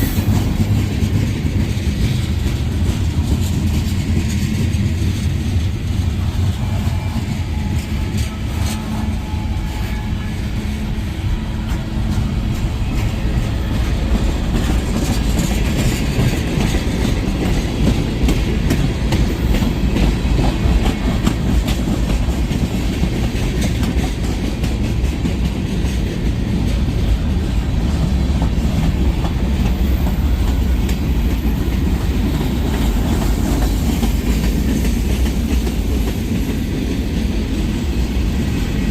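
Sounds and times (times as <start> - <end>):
freight train cars rumbling: 0.0 - 38.9
low locomotive drone: 0.0 - 38.9
wheels clacking over rail joints: 0.0 - 38.9.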